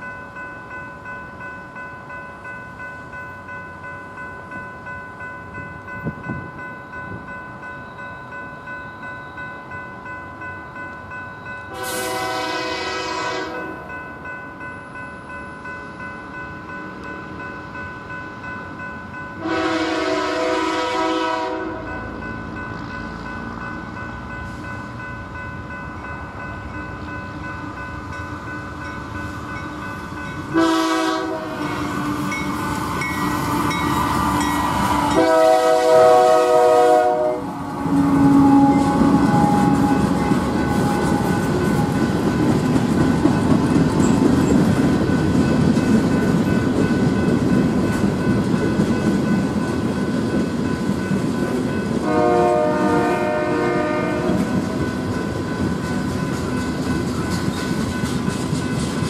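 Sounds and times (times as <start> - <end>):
freight train rumbling: 0.0 - 59.0
train air horn blasts: 11.7 - 13.8, 19.4 - 22.0, 30.5 - 32.4, 33.4 - 42.0, 52.0 - 54.5
wheels clacking on rail joints: 37.5 - 59.0.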